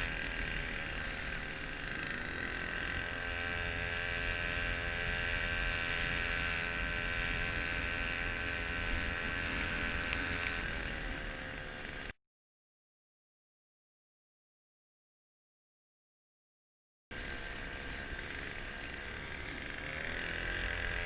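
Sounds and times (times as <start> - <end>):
small boat motor running: 0.0 - 12.2, 17.1 - 21.0.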